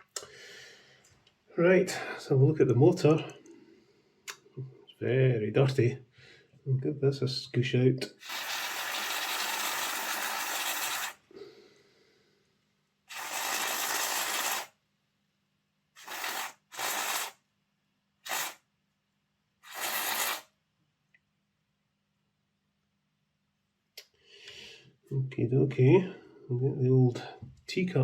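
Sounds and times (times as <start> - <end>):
aerosol spray hissing: 8.2 - 11.2, 13.1 - 14.7, 16.0 - 17.4, 18.2 - 18.6, 19.6 - 20.5.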